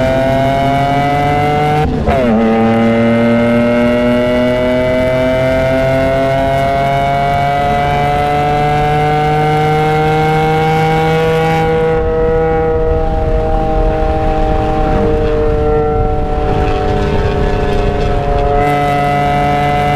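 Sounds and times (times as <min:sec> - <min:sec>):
car engine accelerating: 0:00.0 - 0:19.9.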